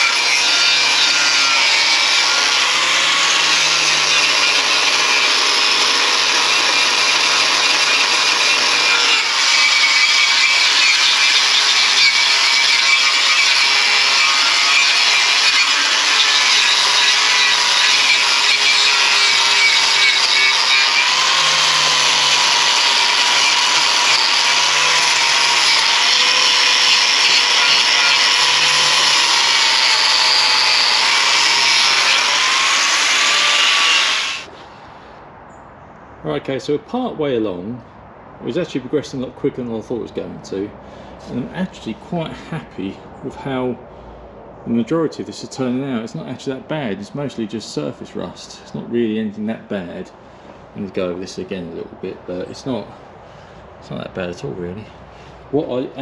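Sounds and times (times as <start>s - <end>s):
power tool grinding metal: 0.0s - 34.5s.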